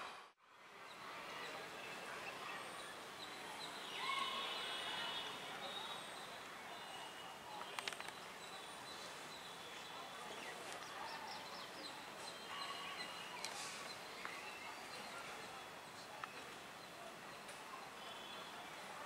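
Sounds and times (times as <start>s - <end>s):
small birds chirping: 0.9s - 18.7s
sharp clicks: 7.6s - 8.2s.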